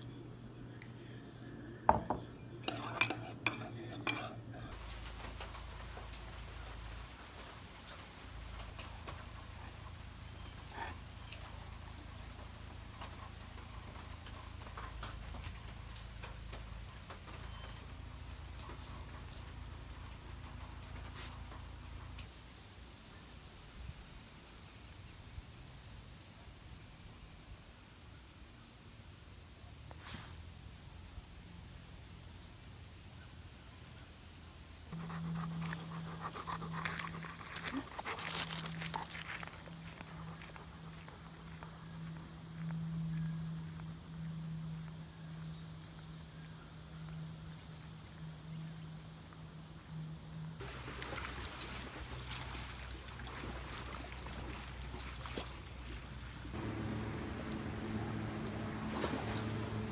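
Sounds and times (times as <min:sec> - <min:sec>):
dog sounds: 0:34.9 - 0:42.3
small clicks and rustles: 0:34.9 - 0:42.8
low hum: 0:56.3 - 0:59.9.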